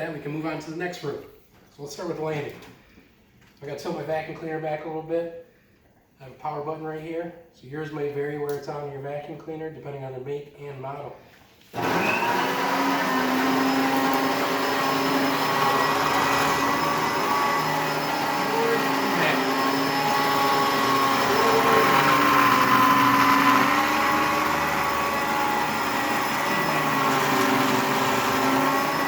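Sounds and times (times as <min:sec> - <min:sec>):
vacuum cleaner motor whine: 0:11.8 - 0:29.0.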